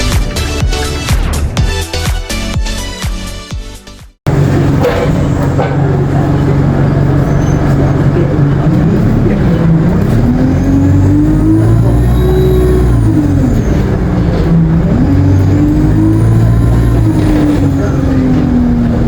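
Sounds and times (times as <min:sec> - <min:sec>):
bus engine driving: 0:04.3 - 0:19.0
high-pitched turbo whine: 0:09.6 - 0:18.6.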